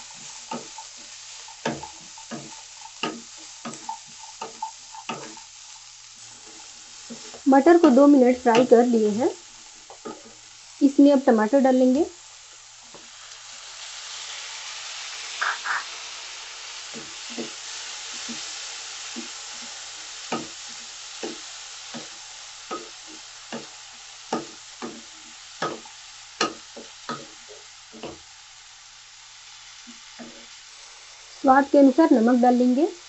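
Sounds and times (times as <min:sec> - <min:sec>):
spatula scraping a pan: 0:00.0 - 0:10.7, 0:16.6 - 0:28.3, 0:29.8 - 0:30.8
vegetables sizzling in hot oil: 0:00.0 - 0:33.0.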